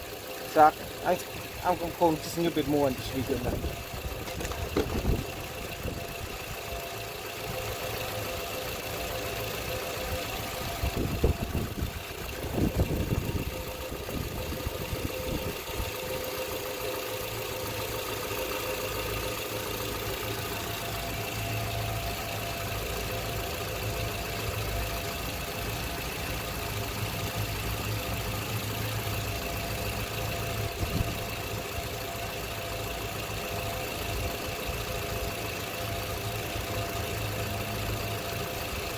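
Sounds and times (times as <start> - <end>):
car engine idling: 0.0 - 38.9
short knocks and clatters: 4.2 - 5.2.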